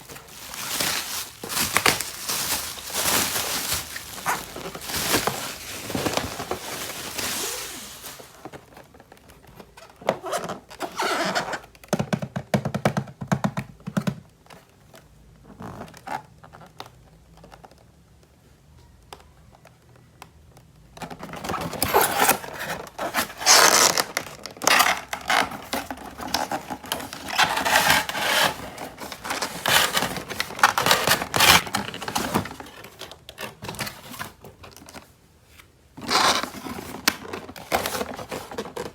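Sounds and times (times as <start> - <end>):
packaging rustling: 0.0 - 11.5, 21.2 - 35.1, 36.0 - 38.9.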